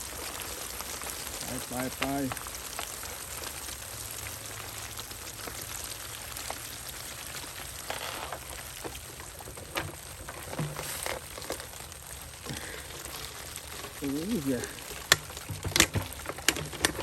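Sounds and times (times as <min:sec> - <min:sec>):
pattering water: 0:00.0 - 0:17.0.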